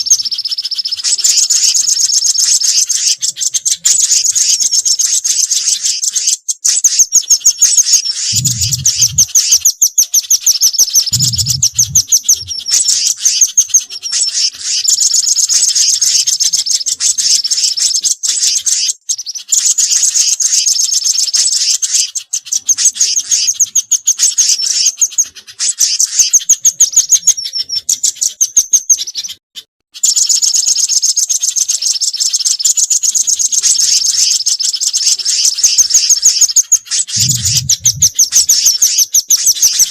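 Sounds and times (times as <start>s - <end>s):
high trilled bird chip notes: 0.0s - 18.6s, 33.6s - 39.9s
short low sounds: 8.4s - 9.3s, 11.2s - 12.5s, 37.2s - 38.1s.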